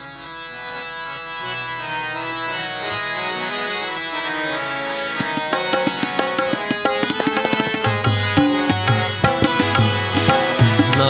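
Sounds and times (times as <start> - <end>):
harmonium melody: 0.0 - 11.0
tabla strokes: 5.4 - 11.0.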